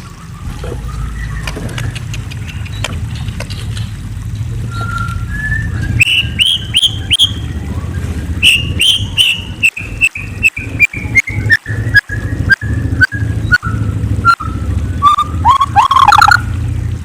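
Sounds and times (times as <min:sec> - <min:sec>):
songbird singing: 0:04.6 - 0:16.8.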